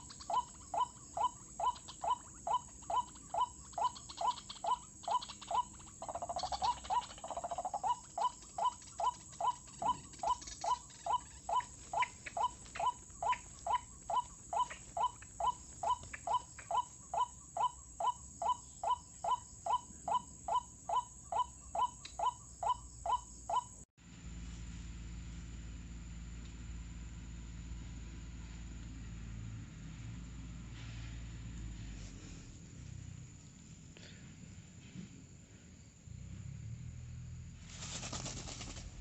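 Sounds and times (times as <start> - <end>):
waterhen calling: 0.0 - 17.8.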